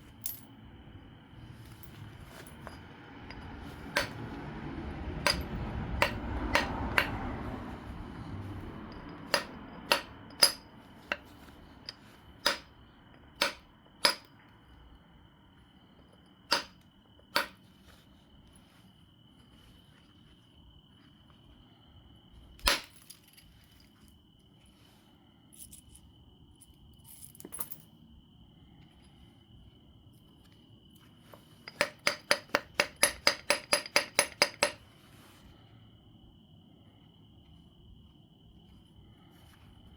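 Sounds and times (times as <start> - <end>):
stone flintknapping clicks: 5.3 - 7.2.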